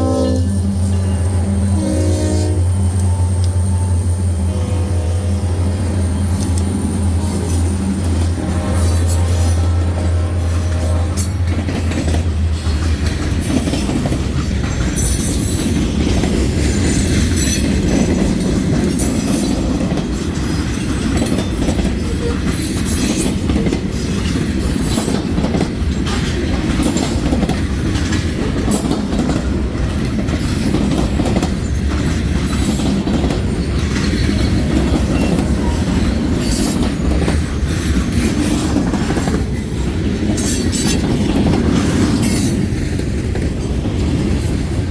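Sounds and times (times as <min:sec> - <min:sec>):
high-pitched wheel squeals: 0:00.0 - 0:07.8
freight train cars clattering: 0:00.0 - 0:44.9.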